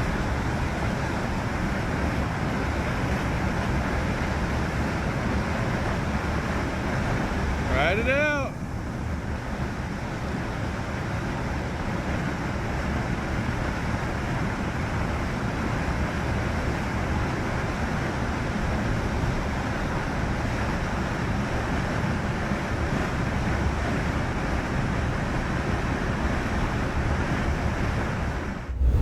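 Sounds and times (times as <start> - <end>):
wind buffeting microphone: 28.6 - 29.0.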